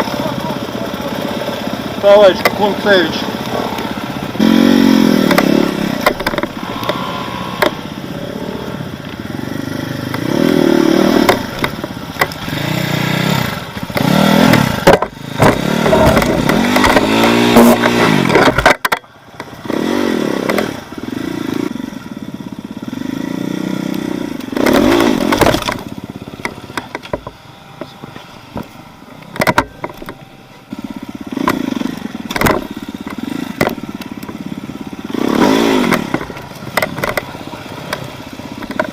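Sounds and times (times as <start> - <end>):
off-road vehicle engine revving: 0.0 - 38.9
vehicle knocks and rattles: 5.2 - 7.0, 11.2 - 12.8, 13.4 - 19.6, 24.4 - 34.4, 35.8 - 38.9.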